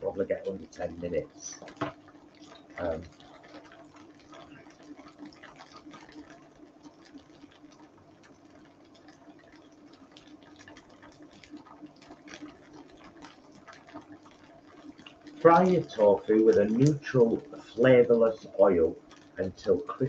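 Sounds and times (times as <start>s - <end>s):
low hum: 0.0s - 1.9s, 2.5s - 3.6s, 15.3s - 20.0s
tofu frying with pops: 0.0s - 20.0s.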